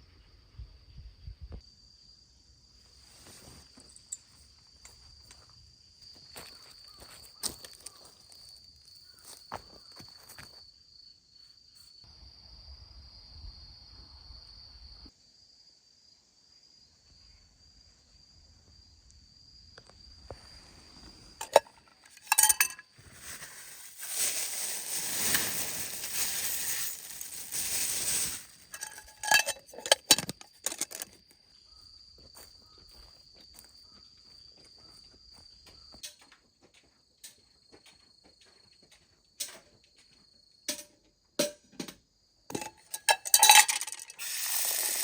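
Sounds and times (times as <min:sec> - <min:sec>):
crickets trilling: 0:00.1 - 0:36.4, 0:42.2 - 0:45.0
sharp clinks and knocks: 0:21.4 - 0:31.2, 0:42.5 - 0:45.0.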